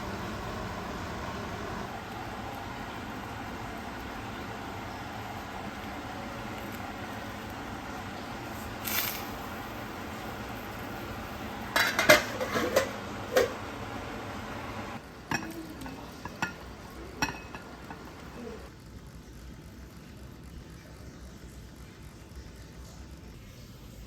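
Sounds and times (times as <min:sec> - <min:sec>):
dishes and cutlery clinking: 0:11.7 - 0:13.6, 0:15.3 - 0:18.2.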